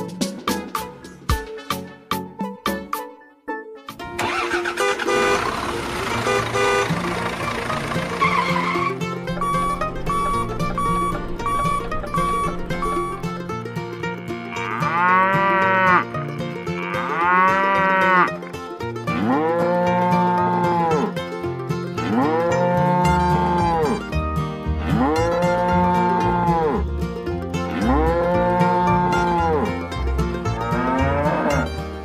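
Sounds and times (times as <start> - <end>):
plucked-string background music: 0.0 - 32.0
cow mooing: 14.1 - 18.4, 19.1 - 21.1, 22.0 - 24.0, 24.8 - 26.9, 27.7 - 29.7, 30.5 - 31.7.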